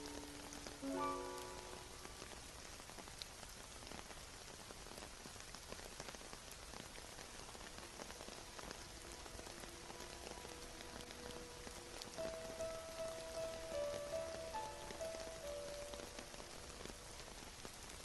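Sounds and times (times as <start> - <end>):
soft music chord: 0.0 - 2.2, 9.5 - 16.9
raindrops ticking: 0.0 - 18.0
steady rain: 0.0 - 18.0.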